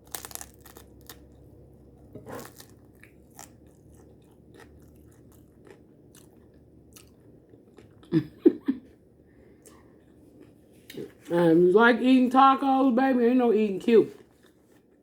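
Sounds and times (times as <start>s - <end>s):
person chewing crunchy food: 0.0s - 8.3s.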